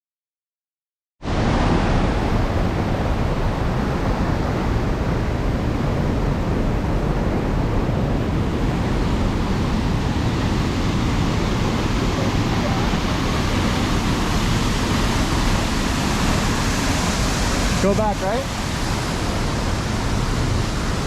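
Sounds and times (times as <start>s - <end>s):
waterfall rushing: 7.5s - 21.0s.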